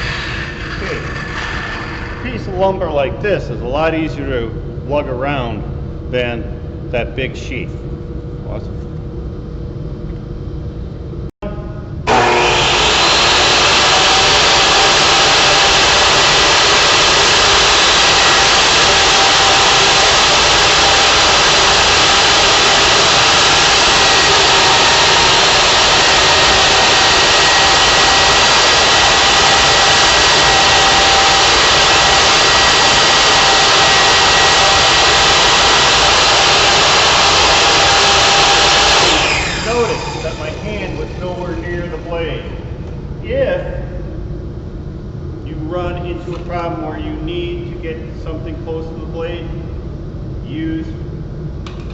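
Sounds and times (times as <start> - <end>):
table saw whining: 12.1 - 41.6.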